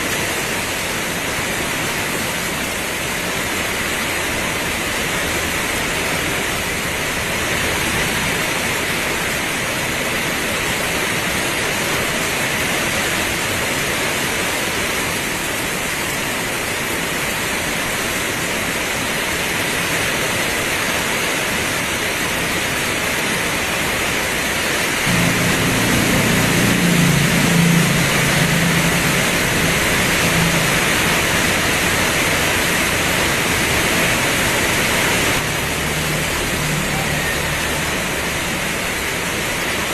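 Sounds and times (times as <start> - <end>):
heavy rain pouring: 0.0 - 39.9
low drone: 25.0 - 39.9.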